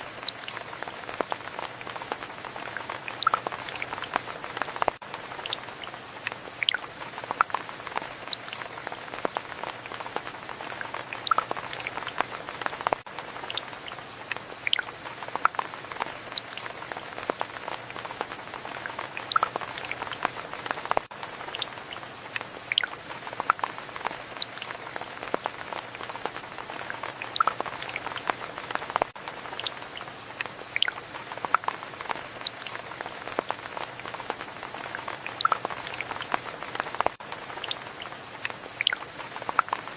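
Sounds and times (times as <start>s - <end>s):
rain drops striking a surface: 0.0s - 39.9s.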